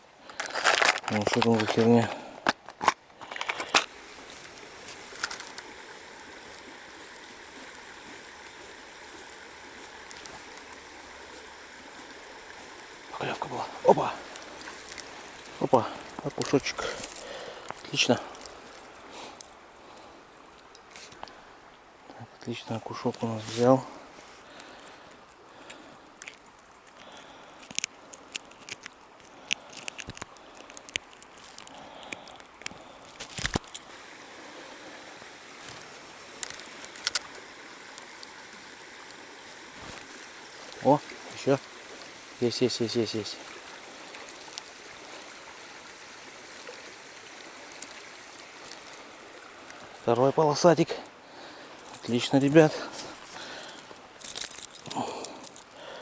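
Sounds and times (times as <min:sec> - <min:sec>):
river water rushing: 0:00.0 - 0:56.0
light rustling of handling: 0:00.3 - 0:05.6
handling clicks and rustles: 0:00.3 - 0:05.7, 0:13.4 - 0:18.8, 0:26.2 - 0:33.9, 0:51.8 - 0:55.8.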